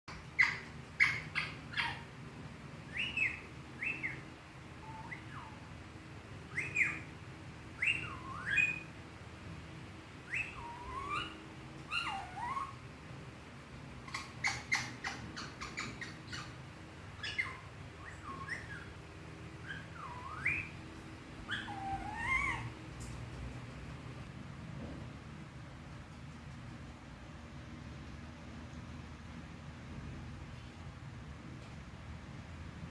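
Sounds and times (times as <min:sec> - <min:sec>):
parrot whistling and chirping: 0:00.1 - 0:02.0, 0:02.9 - 0:05.7, 0:06.5 - 0:07.1, 0:07.8 - 0:09.0, 0:10.3 - 0:12.8, 0:14.1 - 0:16.6, 0:17.2 - 0:19.0, 0:19.6 - 0:20.8, 0:21.5 - 0:22.7.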